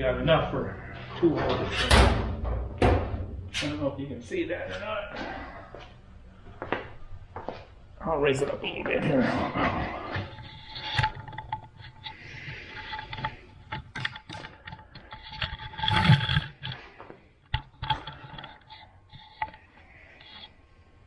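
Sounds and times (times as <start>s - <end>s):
metal cabinet being handled: 1.4s - 3.8s
metal clatter: 1.4s - 3.9s.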